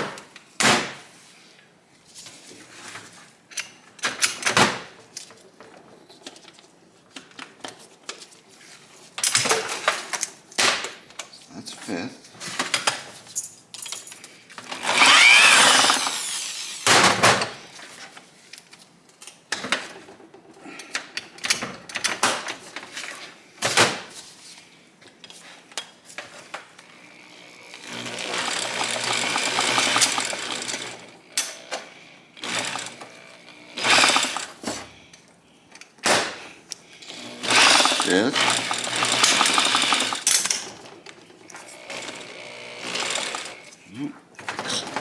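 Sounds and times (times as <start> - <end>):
gears rattling: 14.8 - 17.0, 27.8 - 31.0, 33.8 - 34.6, 37.4 - 40.8.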